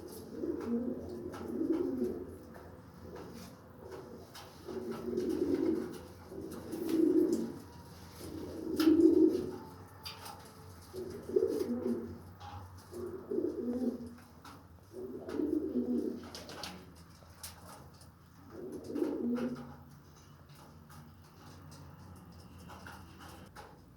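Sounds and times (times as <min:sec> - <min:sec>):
pigeon cooing: 0:00.0 - 0:10.0, 0:10.8 - 0:16.7, 0:18.5 - 0:19.7.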